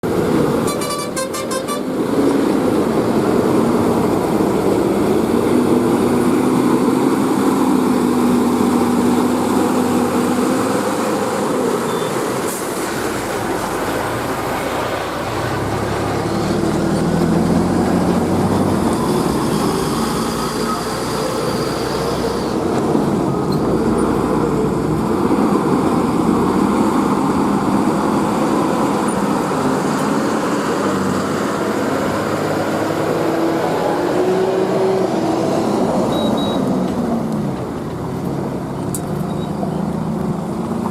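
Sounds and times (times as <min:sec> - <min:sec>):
trucks passing on highway: 0:00.0 - 0:40.9
truck horn: 0:00.6 - 0:02.0.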